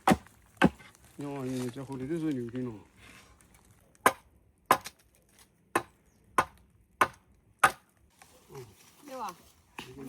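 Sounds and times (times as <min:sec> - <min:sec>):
blade chopping into wood: 0:00.0 - 0:00.8, 0:04.0 - 0:05.0, 0:05.8 - 0:07.9.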